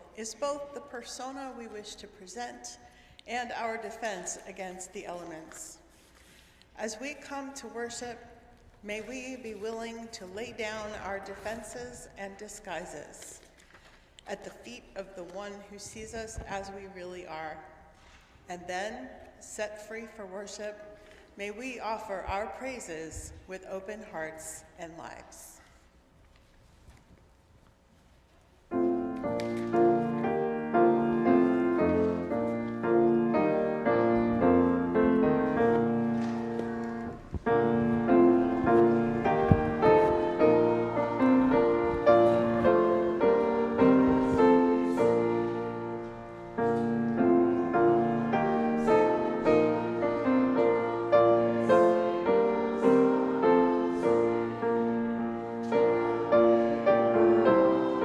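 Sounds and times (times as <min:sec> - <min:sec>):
piano playing slow chords: 0:28.7 - 0:58.0.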